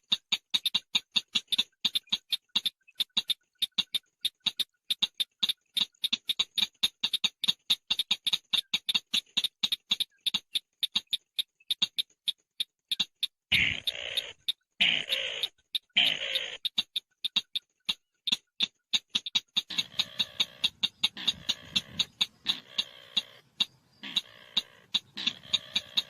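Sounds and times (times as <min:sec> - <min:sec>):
bird chattering call: 0:12.9 - 0:17.6, 0:19.2 - 0:26.0.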